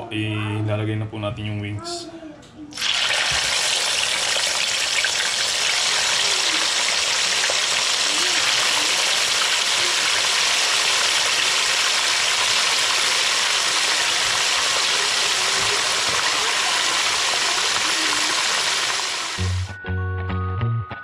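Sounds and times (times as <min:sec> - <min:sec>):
chicken deep-frying in oil: 0:02.8 - 0:19.7.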